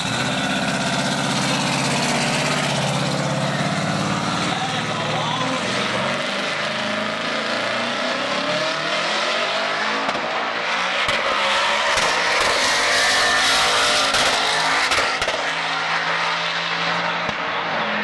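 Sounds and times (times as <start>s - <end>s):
engine at full throttle: 0.0s - 18.0s
exhaust pops and bangs: 10.0s - 10.3s, 14.1s - 15.5s.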